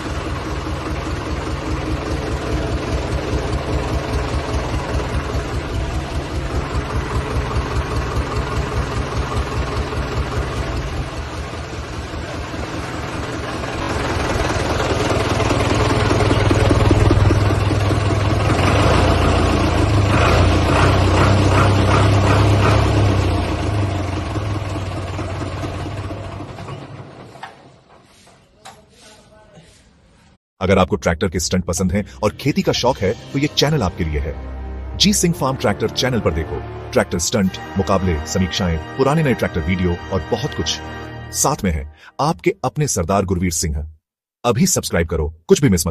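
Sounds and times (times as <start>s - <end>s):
tractor engine idling: 0.0s - 28.8s.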